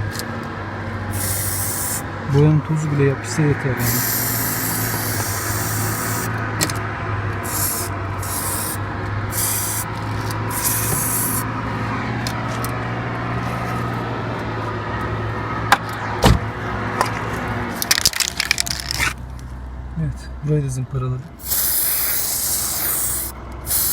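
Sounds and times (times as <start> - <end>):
spray paint hissing: 1.1 - 2.0, 3.8 - 6.4, 7.4 - 11.5, 21.4 - 23.9.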